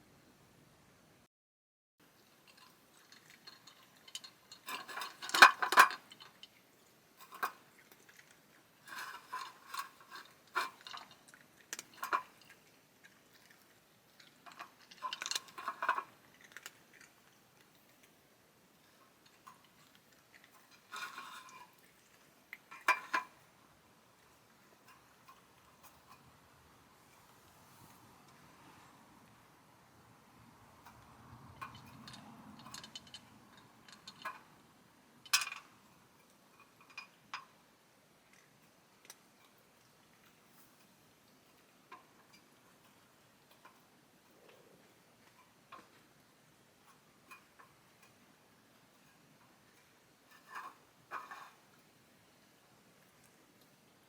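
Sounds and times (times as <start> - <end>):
light sharp clicks and clinks: 2.0 - 28.4, 30.8 - 54.0.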